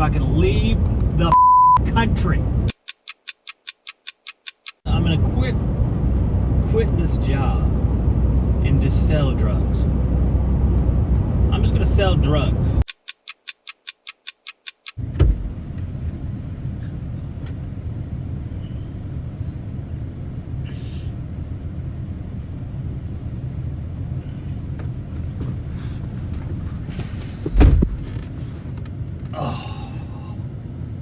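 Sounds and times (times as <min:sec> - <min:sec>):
car road noise rumble: 0:00.0 - 0:02.8, 0:04.8 - 0:12.9, 0:14.9 - 0:31.0
high beeps: 0:01.3 - 0:01.8.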